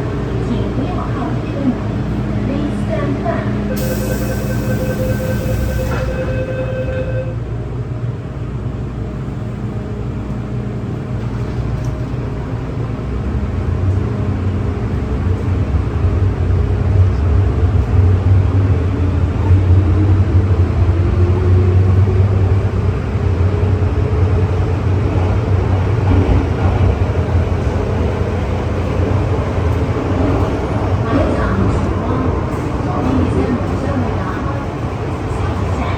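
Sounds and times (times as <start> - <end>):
rising train whine: 0.0 - 35.9
train wheels rumbling on track: 7.6 - 35.9.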